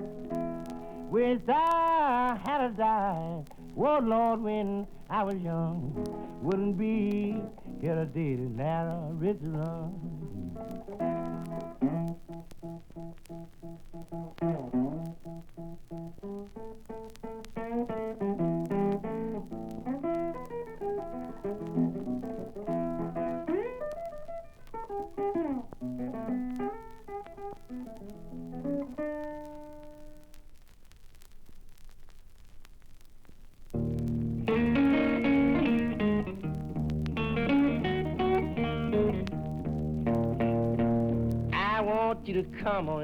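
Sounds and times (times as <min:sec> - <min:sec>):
blues guitar lines: 0:00.0 - 0:30.4, 0:33.7 - 0:43.0.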